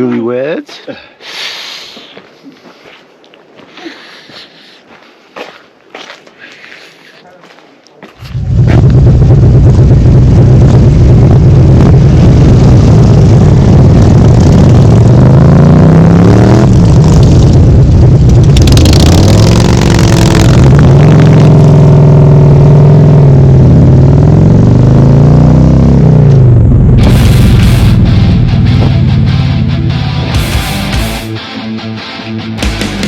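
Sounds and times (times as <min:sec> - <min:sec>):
motorcycle engine accelerating: 0:08.2 - 0:31.3.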